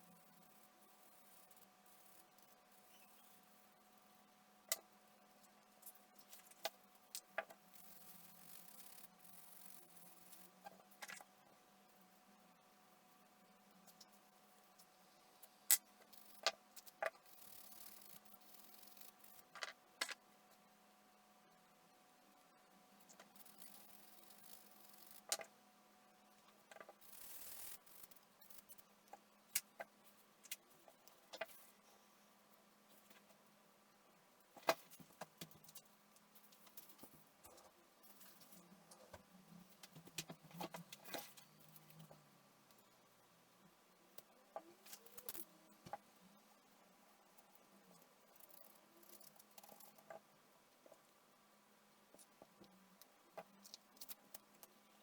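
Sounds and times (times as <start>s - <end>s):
low room hum: 0.0s - 55.0s
small objects clicking and tapping: 23.0s - 25.5s.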